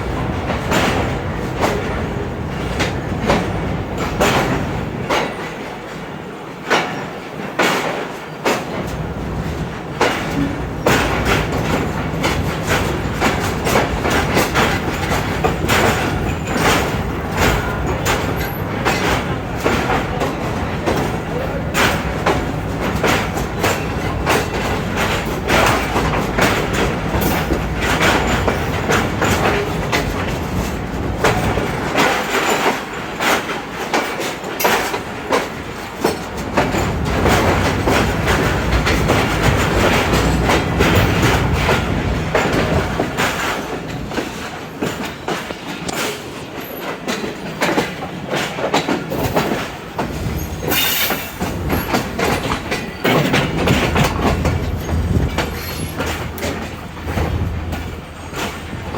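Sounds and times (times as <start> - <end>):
train wheels clattering: 0.0 - 58.9.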